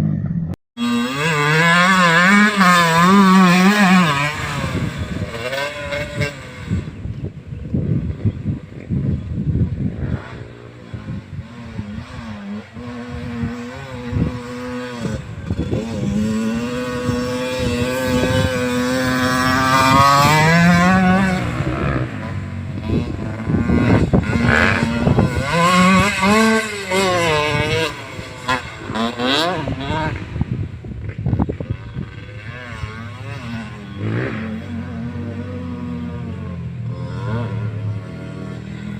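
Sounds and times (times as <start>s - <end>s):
motocross bike engines revving: 0.0s - 38.9s.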